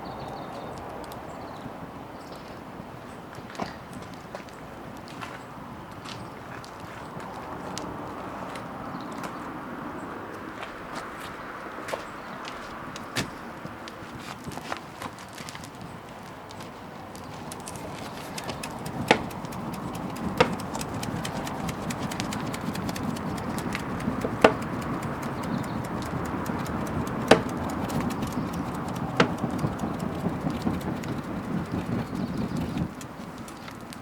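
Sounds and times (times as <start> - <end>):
burning wood popping: 14.5 - 34.0
bonfire crackling: 15.5 - 34.0.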